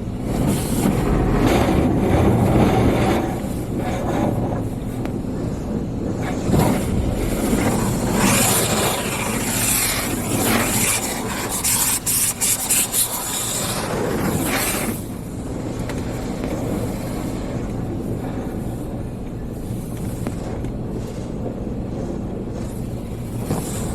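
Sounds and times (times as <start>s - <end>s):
brushes scrubbing car body: 0.0s - 21.3s, 22.0s - 23.9s
car wash spraying water: 0.0s - 23.9s.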